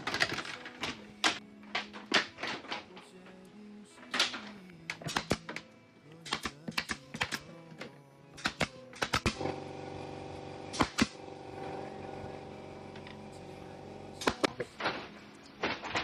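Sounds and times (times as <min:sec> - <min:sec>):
hammer driving nails into boards: 0:04.2 - 0:05.6, 0:06.2 - 0:09.6, 0:10.7 - 0:11.2, 0:14.2 - 0:15.1.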